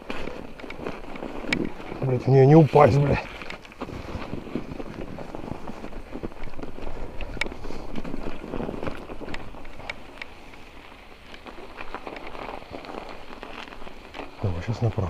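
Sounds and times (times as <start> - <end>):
bike tyres crunching: 0.0 - 15.0
bike rattling clicks: 4.9 - 12.6.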